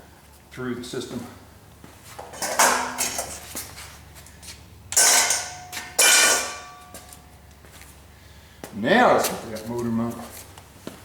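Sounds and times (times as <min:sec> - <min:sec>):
sharp metal clanks: 0:02.3 - 0:03.4, 0:04.9 - 0:07.2.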